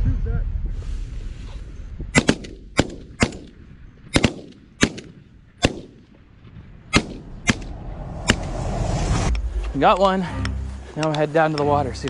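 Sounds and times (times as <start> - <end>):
shotgun shots with echo: 2.1 - 6.1, 6.9 - 8.5.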